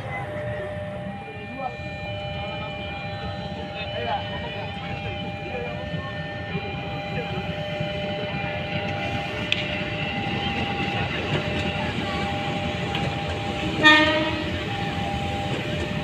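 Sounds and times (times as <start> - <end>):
train rumbling along track: 0.0 - 16.0
train horn blast: 13.5 - 16.0.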